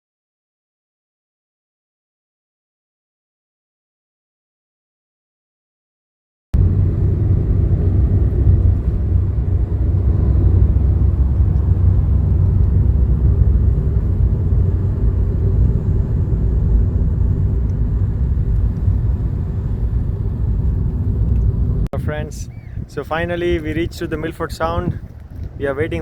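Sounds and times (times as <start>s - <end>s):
vehicle road rumble: 6.6s - 26.0s.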